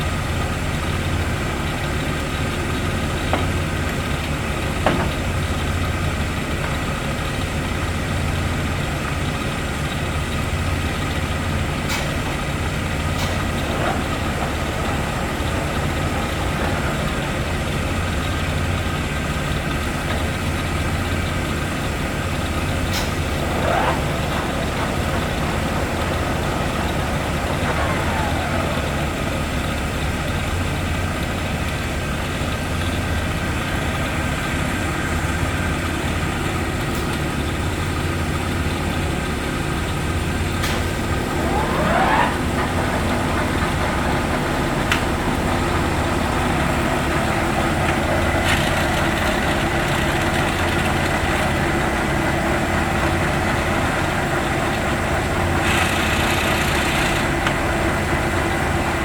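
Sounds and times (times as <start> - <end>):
lathe motor humming: 10.6 - 59.0
rising machine whine: 13.0 - 18.6, 22.1 - 31.0, 40.7 - 49.9.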